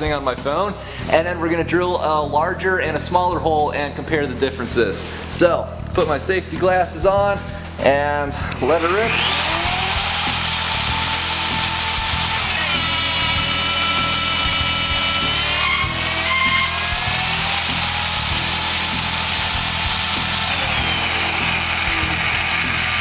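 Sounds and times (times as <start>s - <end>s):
magnetic drill cutting whine: 8.7s - 23.0s.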